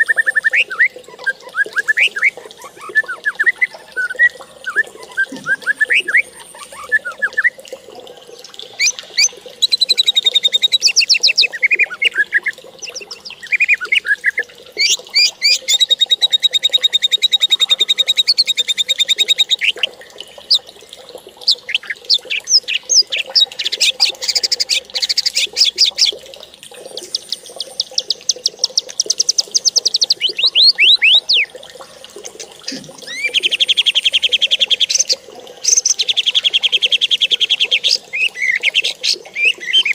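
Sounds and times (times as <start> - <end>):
songbird trills and chirps: 8.4 - 19.8, 26.9 - 31.5, 32.6 - 39.9.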